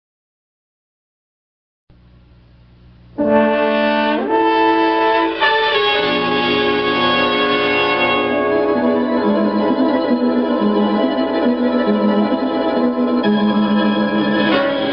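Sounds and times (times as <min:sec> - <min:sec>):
brass fanfare: 0:03.2 - 0:12.2, 0:13.2 - 0:14.9.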